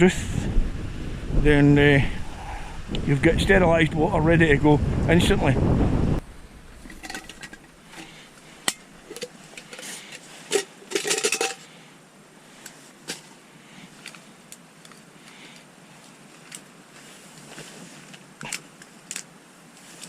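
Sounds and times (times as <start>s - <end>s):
clattering: 6.8s - 11.7s.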